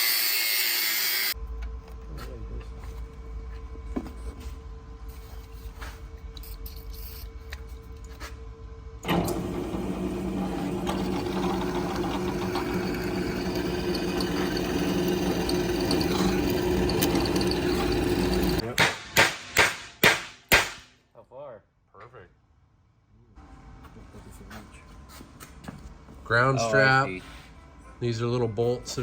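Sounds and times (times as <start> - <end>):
machine running at steady pitch: 8.4 - 18.6.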